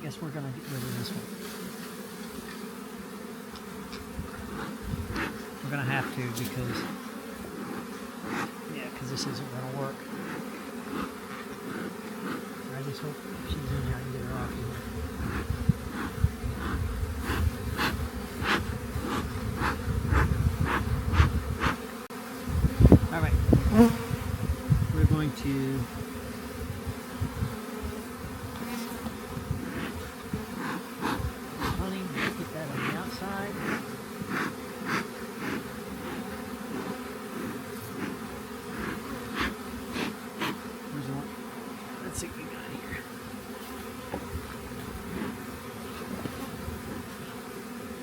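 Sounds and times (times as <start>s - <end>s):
honey bees buzzing: 0.0s - 48.0s.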